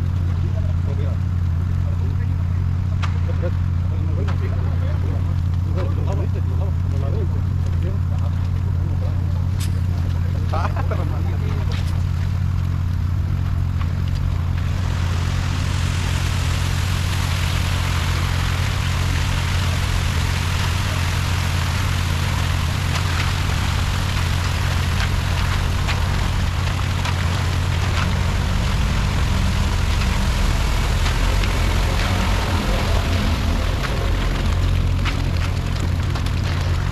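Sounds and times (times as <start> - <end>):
diesel engine running: 0.0 - 36.9
steady rushing noise: 9.8 - 36.9.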